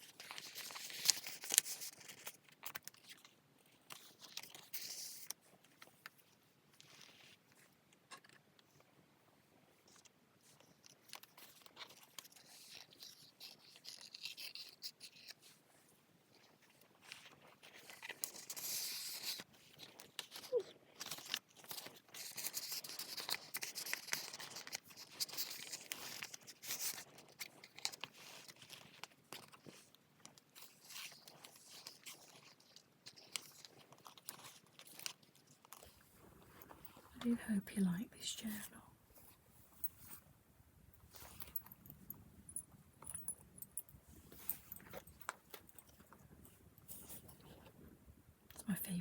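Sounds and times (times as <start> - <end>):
paper pages rustling: 0.1 - 3.3.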